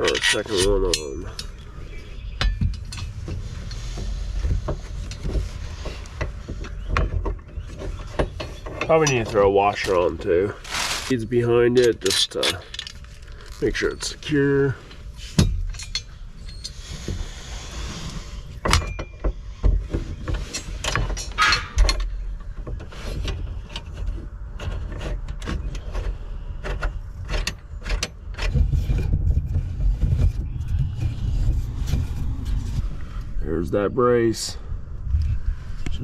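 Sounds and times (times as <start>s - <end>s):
metal hardware clicks and knocks: 0.0s - 1.6s, 2.4s - 3.8s, 6.2s - 10.2s, 11.5s - 14.5s, 15.3s - 16.8s, 18.6s - 29.1s
low steady hum: 0.0s - 36.0s.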